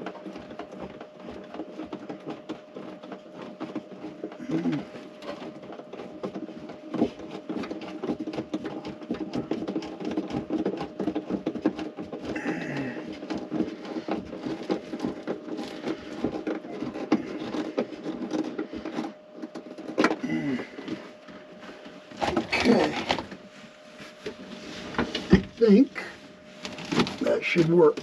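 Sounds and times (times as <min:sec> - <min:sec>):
hands clicking and scraping parts: 0:00.0 - 0:28.0
low mumble: 0:04.4 - 0:05.0, 0:20.2 - 0:21.0.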